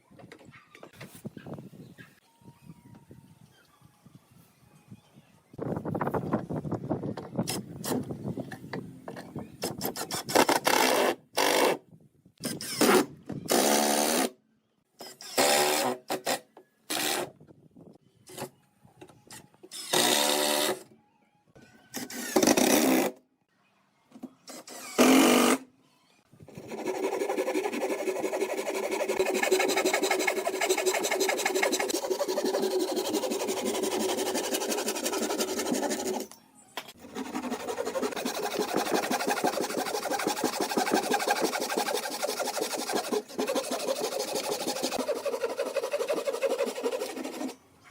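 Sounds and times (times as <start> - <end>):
scraping strokes on wood: 26.5 - 36.3, 36.9 - 47.6.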